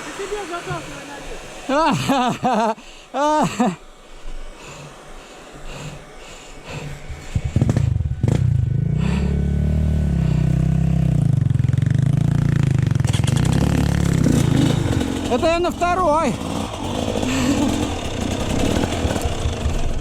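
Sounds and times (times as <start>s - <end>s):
motorcycle engine starting and running: 7.0s - 20.0s.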